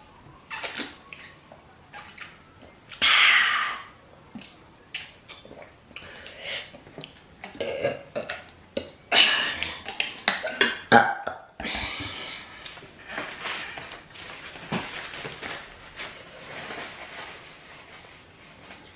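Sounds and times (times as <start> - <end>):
mouth smacking and chewing: 4.3 - 7.6.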